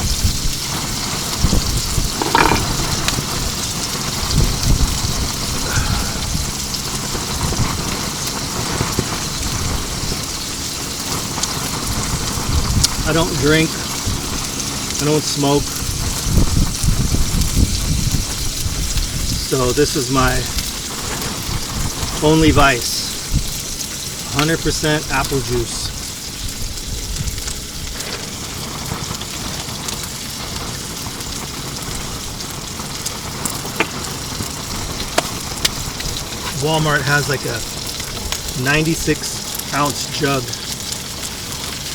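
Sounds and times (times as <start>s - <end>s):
wind gusts buffeting tent: 0.0s - 14.9s, 15.6s - 24.3s
wind rumble on microphone: 0.0s - 15.0s, 15.6s - 24.3s, 25.3s - 36.6s
fish sizzling in a pan: 0.0s - 41.9s.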